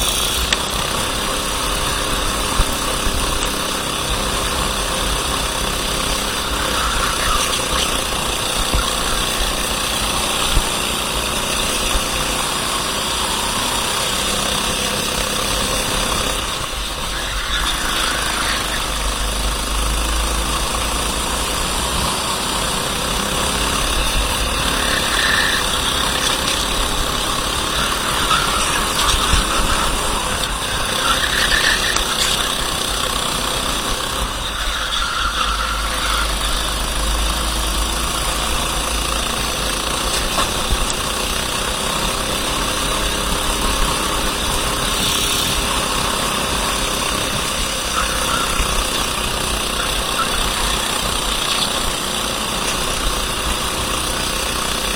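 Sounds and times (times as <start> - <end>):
kart engine running hard: 0.0 - 54.9.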